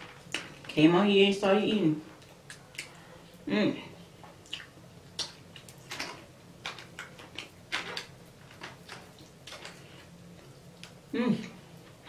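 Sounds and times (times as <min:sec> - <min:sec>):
wet chewing clicks and smacks: 0:02.2 - 0:03.0, 0:04.4 - 0:09.8.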